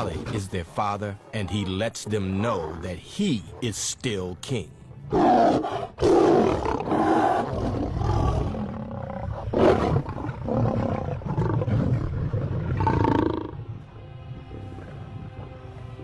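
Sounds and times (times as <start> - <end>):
background music: 0.0 - 16.0
lions roaring: 5.1 - 13.6.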